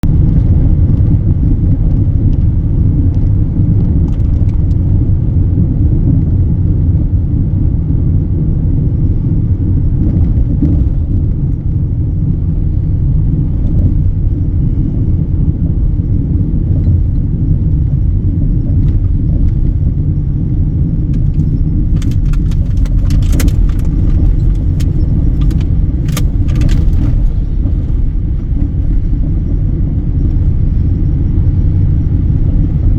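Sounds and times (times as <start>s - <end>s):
truck engine running: 0.0s - 32.9s
sharp clicks and rattles: 0.3s - 5.1s, 16.6s - 29.3s.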